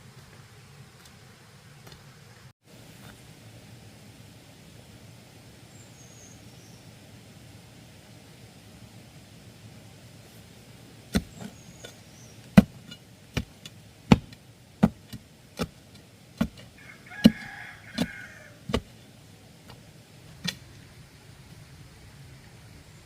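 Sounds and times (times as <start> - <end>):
chopping blows on bamboo: 11.1 - 18.9.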